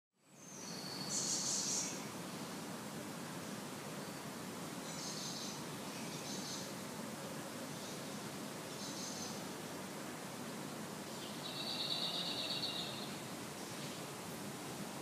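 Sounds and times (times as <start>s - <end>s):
steady background noise: 0.7s - 15.0s
small bird calling and trilling: 11.2s - 13.1s.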